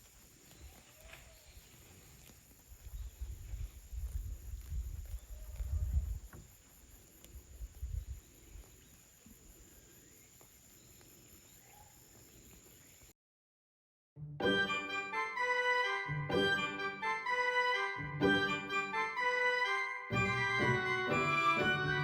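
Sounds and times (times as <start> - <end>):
insects trilling: 0.0 - 13.1.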